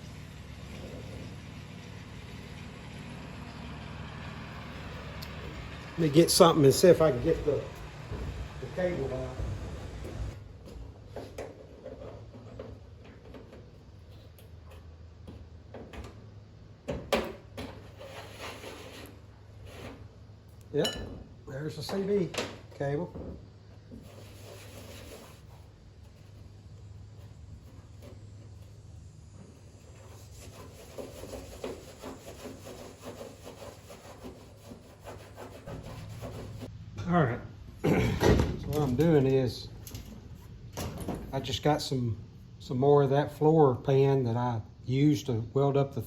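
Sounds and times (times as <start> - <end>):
short scrape: 17.8 - 20.1, 24.0 - 26.4
sheet steel being cut: 29.8 - 36.7.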